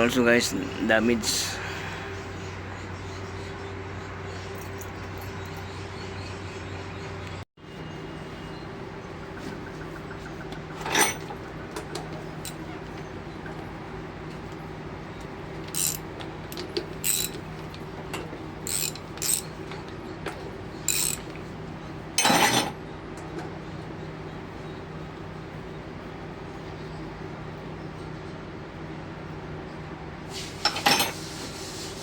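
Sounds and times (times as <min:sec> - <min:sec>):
steady low hum: 0:00.0 - 0:30.4
metal tools clinking: 0:04.6 - 0:05.5, 0:10.8 - 0:11.4, 0:15.7 - 0:20.0, 0:20.9 - 0:21.4, 0:22.2 - 0:22.7, 0:30.6 - 0:31.2.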